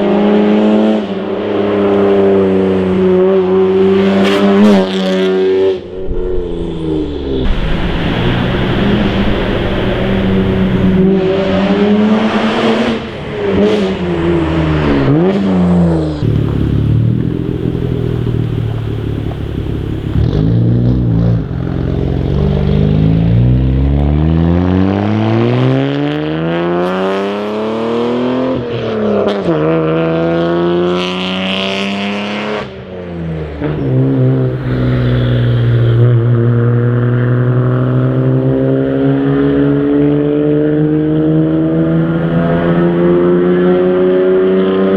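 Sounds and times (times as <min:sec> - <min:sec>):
car exhaust accelerating: 0:05.2 - 0:25.3, 0:33.2 - 0:44.9.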